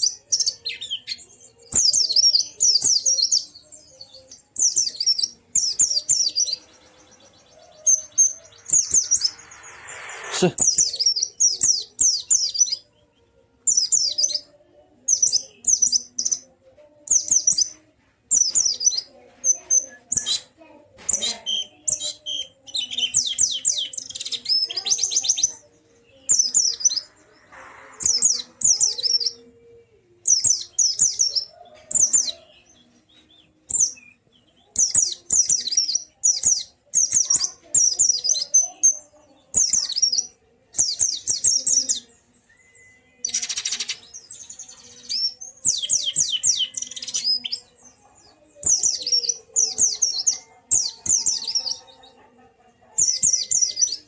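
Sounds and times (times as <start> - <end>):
white-eye bird twittering song: 0.0 - 12.9, 30.2 - 39.0.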